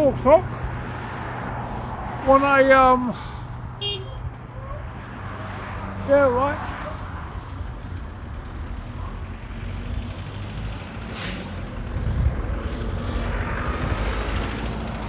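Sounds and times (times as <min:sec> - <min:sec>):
idling heavy traffic rumble: 0:00.0 - 0:15.0
air brake hiss: 0:11.1 - 0:11.8.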